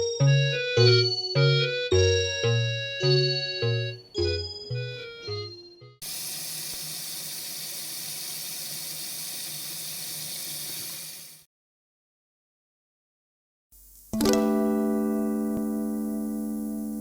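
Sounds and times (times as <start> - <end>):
keyboard music: 0.0 - 6.0, 14.2 - 17.0.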